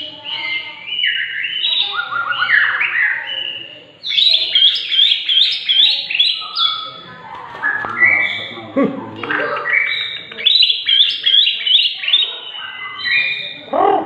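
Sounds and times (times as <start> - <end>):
bird singing whistled notes: 0.2 - 7.0, 9.2 - 13.6.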